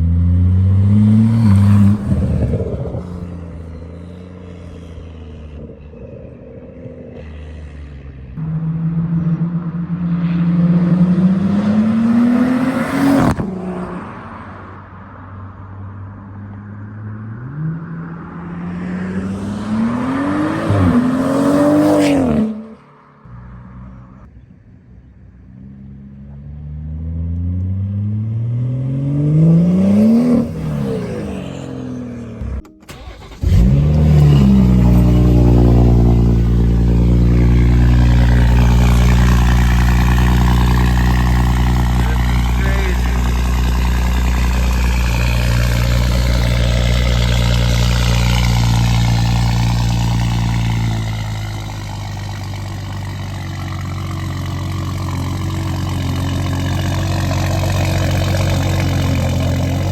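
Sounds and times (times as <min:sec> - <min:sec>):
car engine revving hard: 0:00.0 - 0:03.2, 0:18.4 - 0:22.8, 0:27.3 - 0:59.9.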